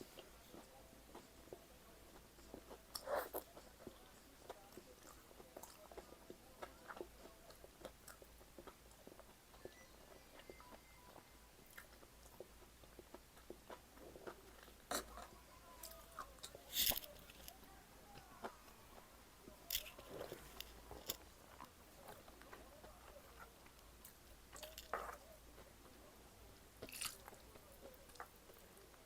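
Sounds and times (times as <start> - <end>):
person chewing food: 0.0 - 26.0, 26.8 - 29.0
sharp crunches and clicks: 11.7 - 17.6, 19.6 - 23.0, 23.6 - 25.3, 26.8 - 28.6.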